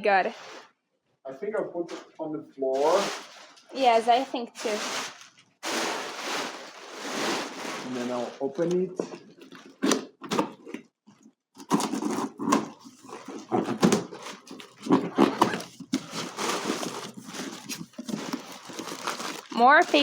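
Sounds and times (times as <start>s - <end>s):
cardboard box being opened: 2.8s - 8.3s, 9.0s - 10.8s, 11.6s - 20.0s
packing paper rustling: 2.8s - 10.8s, 11.6s - 20.0s.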